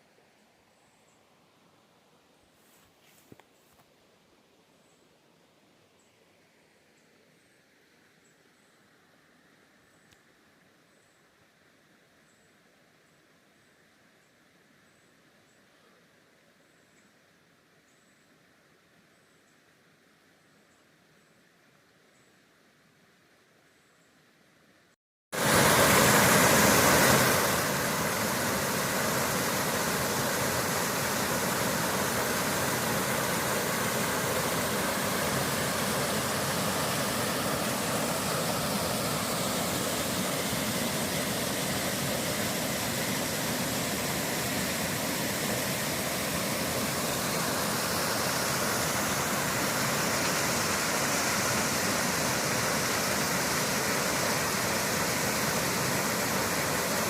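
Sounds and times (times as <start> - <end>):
waterfall pouring: 25.4 - 57.0.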